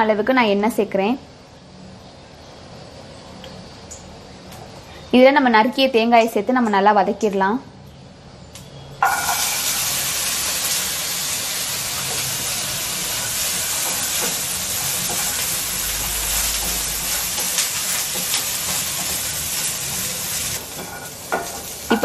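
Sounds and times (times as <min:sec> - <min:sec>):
coconut sizzling in hot oil: 0:09.0 - 0:22.0.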